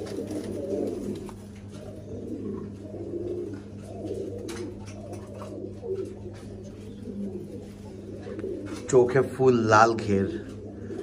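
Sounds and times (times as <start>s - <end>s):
pigeons cooing: 0.0s - 11.0s
steady low hum: 0.0s - 11.0s.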